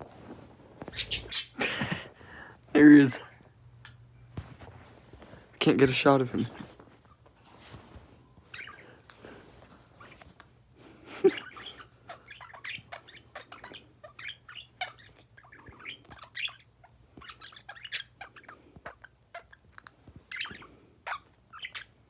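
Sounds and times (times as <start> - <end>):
birds chirping and squawking: 0.8 - 3.2, 8.4 - 10.3, 11.0 - 22.0.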